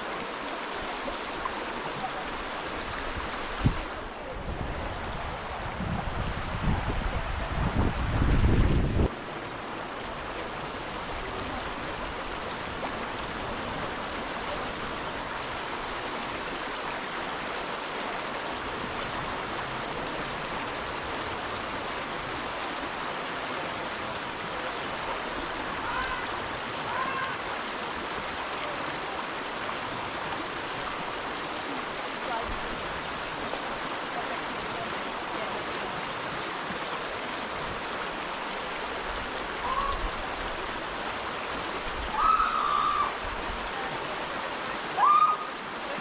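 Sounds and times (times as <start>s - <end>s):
river water rushing over rocks: 0.0s - 46.0s
wind gust on microphone: 2.7s - 14.1s.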